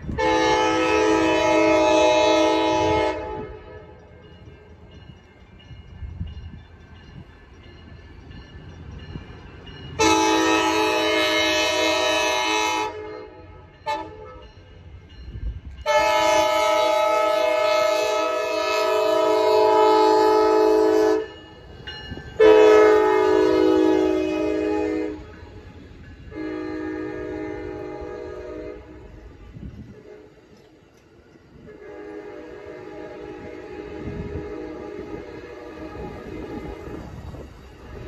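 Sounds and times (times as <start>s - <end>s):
low train rumble: 0.0s - 38.0s
train air horn blasts: 0.1s - 4.0s, 10.0s - 14.4s, 15.8s - 21.4s, 22.4s - 25.6s, 26.3s - 30.6s, 31.6s - 37.0s.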